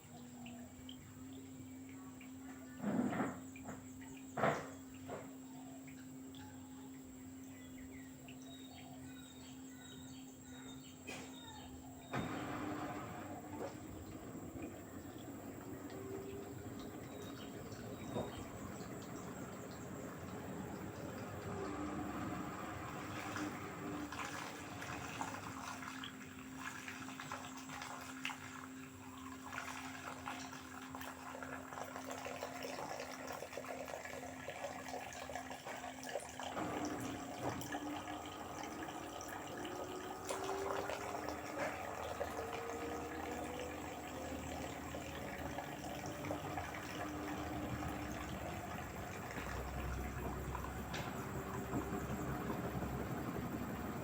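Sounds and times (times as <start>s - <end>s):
washing machine hum: 0.0s - 54.0s
washing machine whine: 0.0s - 54.0s
water rushing and splashing: 12.1s - 54.0s.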